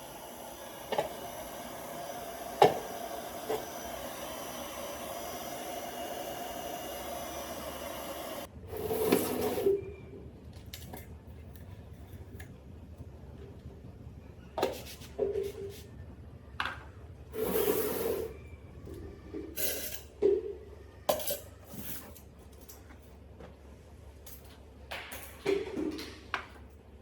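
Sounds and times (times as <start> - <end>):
tools and small parts clinking: 21.1 - 23.3, 24.2 - 25.7.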